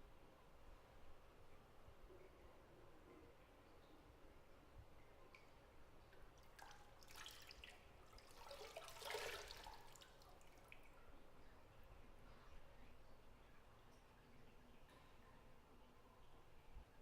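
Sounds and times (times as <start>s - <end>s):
water drips: 4.9s - 16.8s
water sloshing in bathtub: 6.4s - 10.9s.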